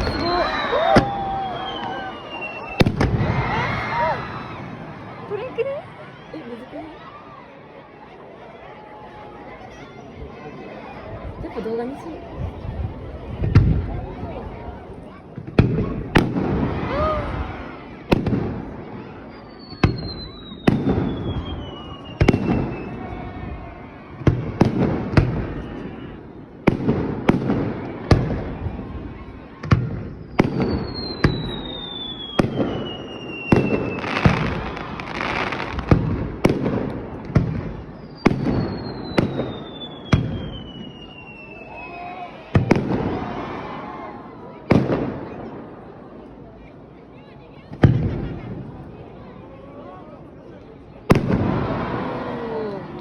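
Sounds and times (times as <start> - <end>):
long falling whistle: 0.0 - 4.8, 30.8 - 35.0, 38.6 - 42.3
fireworks crackle: 0.0 - 5.4, 29.6 - 43.6
fireworks bangs: 0.0 - 7.1, 11.6 - 14.6, 15.2 - 46.3, 47.6 - 49.1, 51.1 - 53.0.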